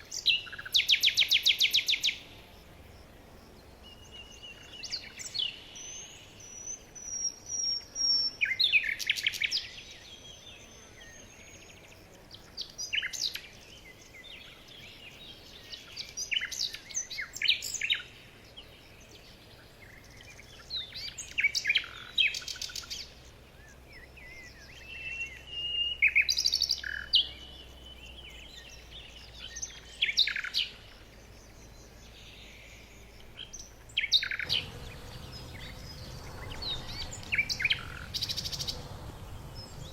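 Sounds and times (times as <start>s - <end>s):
birds chirping: 27.8s - 39.9s
bird whistles: 34.2s - 39.9s.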